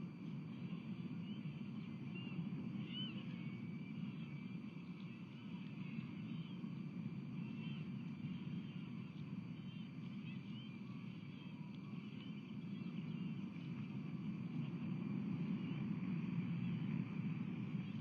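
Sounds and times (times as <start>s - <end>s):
faint high bird chirps: 0.5s - 14.8s.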